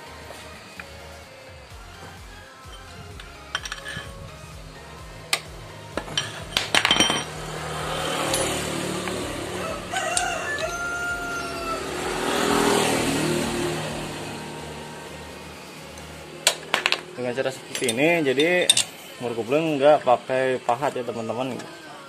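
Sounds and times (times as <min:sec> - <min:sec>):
wrench clinking on metal: 0:02.7 - 0:04.4, 0:05.3 - 0:07.4, 0:08.1 - 0:09.2, 0:17.7 - 0:19.0
rooster crowing: 0:08.0 - 0:14.4.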